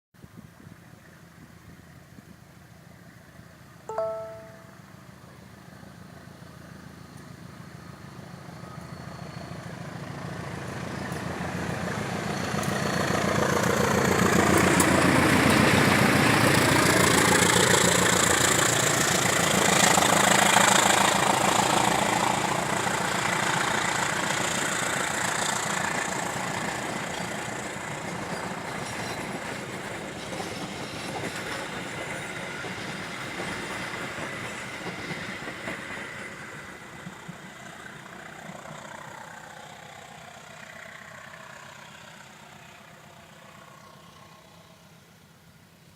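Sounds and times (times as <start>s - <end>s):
train wheels rolling: 25.8s - 39.4s.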